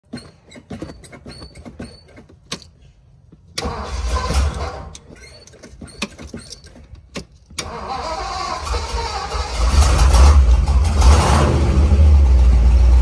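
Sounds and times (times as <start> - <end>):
car engine starting and running: 3.4 - 13.0.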